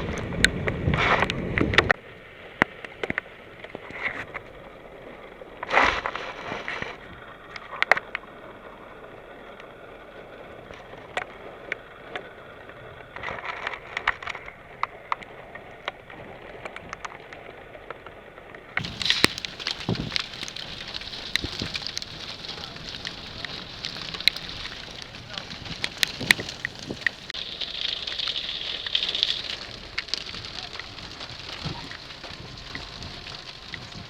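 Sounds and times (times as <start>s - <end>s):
sharp ticks of raindrops: 0.1s - 5.5s, 18.8s - 34.0s
rain and wind hiss: 18.8s - 34.0s.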